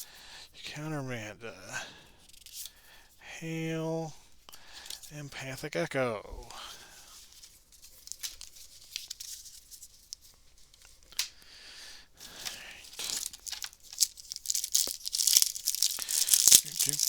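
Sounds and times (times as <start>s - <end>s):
wrapper crinkling and tearing: 7.8s - 10.2s, 12.2s - 17.0s.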